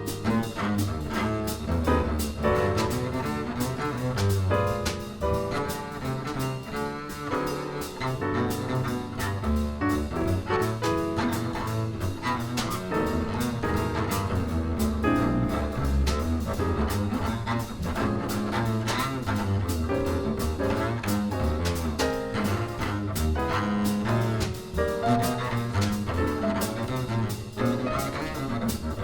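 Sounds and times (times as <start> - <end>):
drums with cymbals: 0.0 - 17.1
acoustic piano: 0.0 - 29.0
upright double bass: 0.0 - 29.0.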